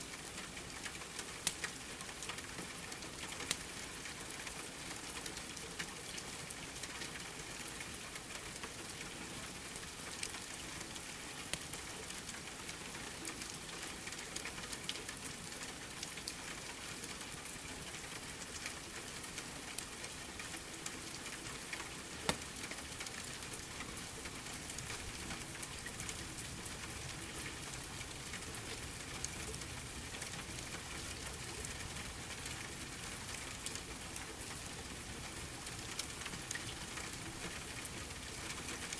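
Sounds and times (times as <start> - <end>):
steady rain: 0.0 - 38.9
wood fire crackling: 21.6 - 32.5.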